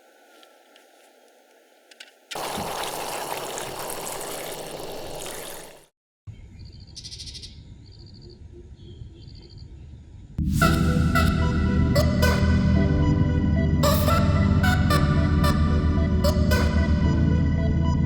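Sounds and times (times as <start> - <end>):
outdoor ambience: 0.0 - 12.4.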